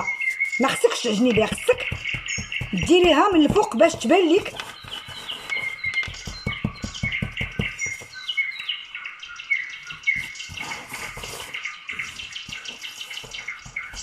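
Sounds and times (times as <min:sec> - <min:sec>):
small bird chirping: 0:00.0 - 0:14.0
light tapping and rustling: 0:00.9 - 0:08.2.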